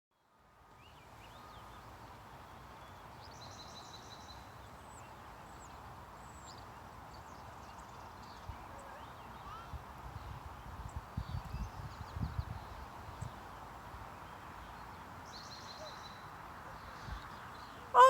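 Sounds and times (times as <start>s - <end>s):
outdoor background noise: 0.1s - 18.0s
birds chirping: 16.8s - 18.0s.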